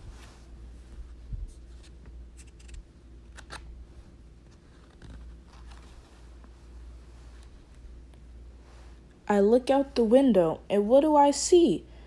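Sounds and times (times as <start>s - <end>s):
book pages rustling: 0.0s - 8.0s
low steady hum: 0.0s - 12.0s.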